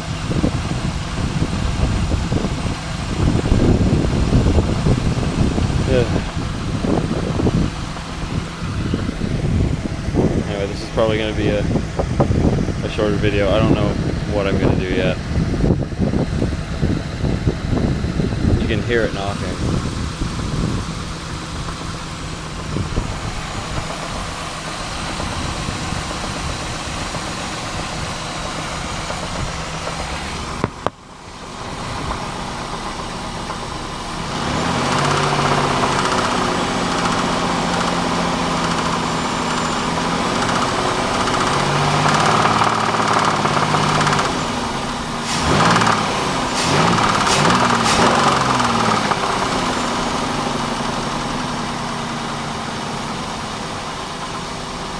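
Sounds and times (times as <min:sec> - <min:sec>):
car engine with rod knock: 0:28.9 - 0:31.0, 0:34.4 - 0:44.5, 0:45.3 - 0:50.0.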